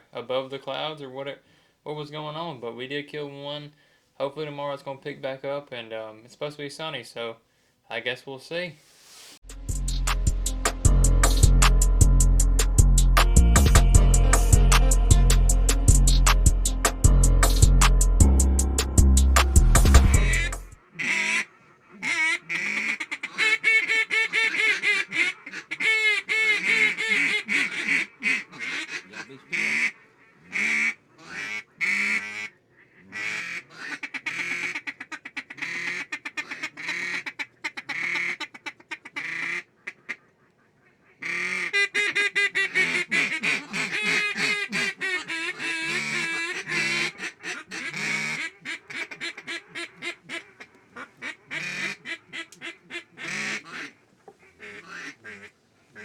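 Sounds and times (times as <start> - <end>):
duck quacking: 20.1 - 56.0.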